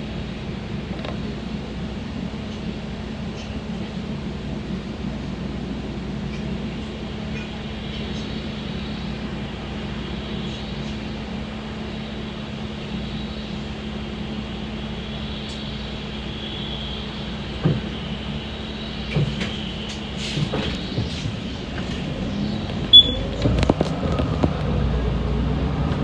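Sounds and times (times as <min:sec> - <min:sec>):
engine and road hum: 0:00.0 - 0:26.0.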